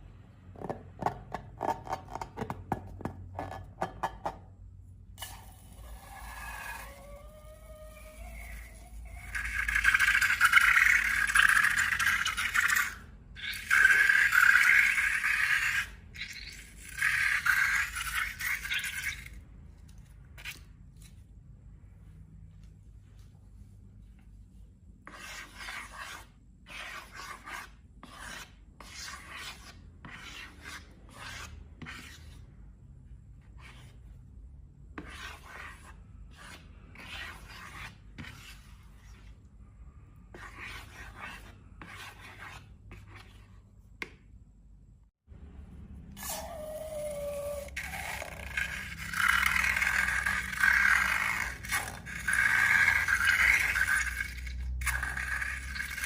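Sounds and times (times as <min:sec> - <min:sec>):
slime rubbing and scraping: 0:05.8 - 0:19.4, 0:25.1 - 0:32.5, 0:40.4 - 0:43.7, 0:46.2 - 0:56.0.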